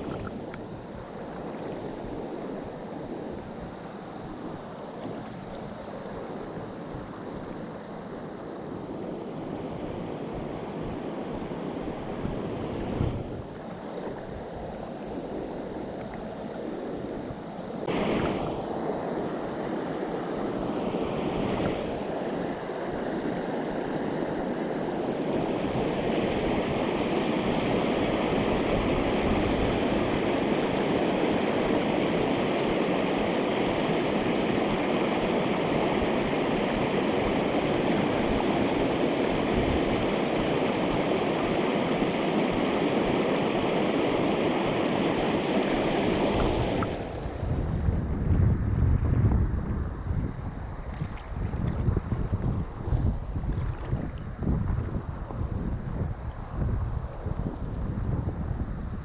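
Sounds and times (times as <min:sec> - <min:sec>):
stream rushing over rocks: 0:17.8 - 0:23.1, 0:23.7 - 0:47.9.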